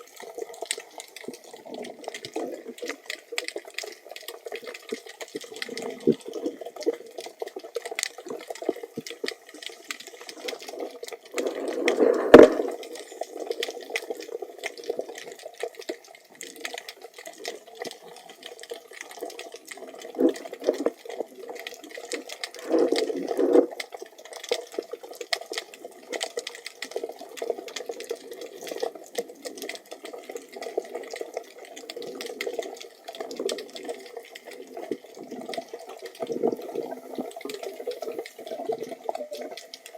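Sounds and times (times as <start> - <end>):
fine crackling clicks: 0.0 - 39.9
underwater water movement: 0.0 - 39.9.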